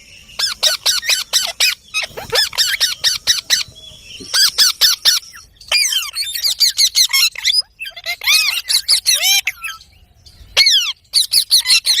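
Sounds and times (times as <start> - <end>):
parrot chirps and squawks: 0.4 - 9.9, 10.6 - 12.0.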